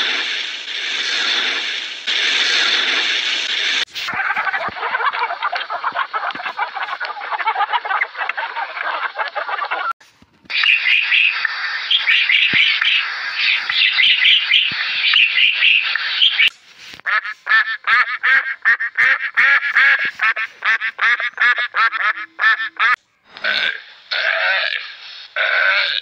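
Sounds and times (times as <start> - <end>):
waterfowl quacking: 10.5 - 23.7.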